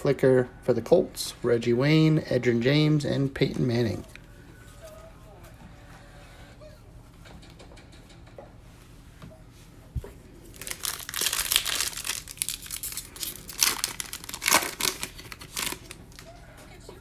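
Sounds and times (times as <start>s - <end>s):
wrapper crinkling and tearing: 10.4s - 16.3s.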